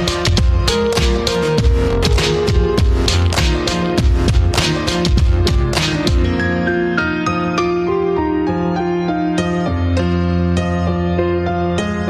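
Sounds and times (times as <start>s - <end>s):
calm new-age instrumental music: 0.0s - 12.0s.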